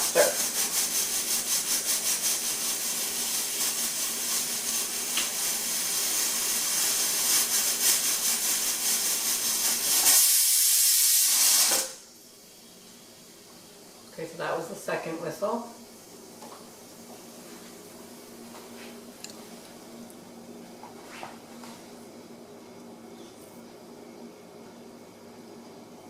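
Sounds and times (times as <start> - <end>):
pressure cooker whistling: 0.0 - 12.0.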